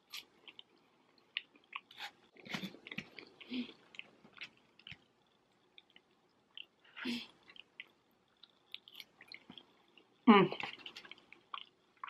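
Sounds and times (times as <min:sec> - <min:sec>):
chewing soft food: 0:00.0 - 0:12.0.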